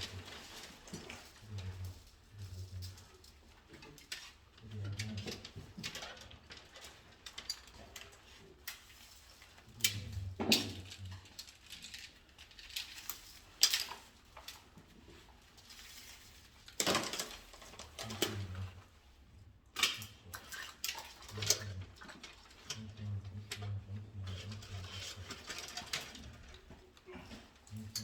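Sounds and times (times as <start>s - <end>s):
tools clicking and clattering: 9.8s - 14.6s, 16.7s - 18.6s.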